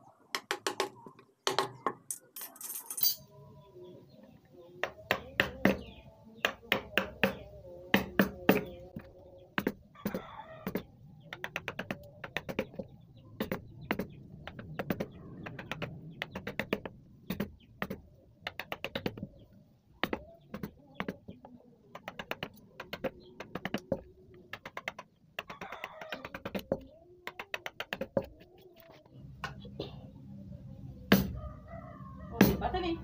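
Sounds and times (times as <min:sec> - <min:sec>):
mallet tapping chisel into wood: 0:04.8 - 0:12.8.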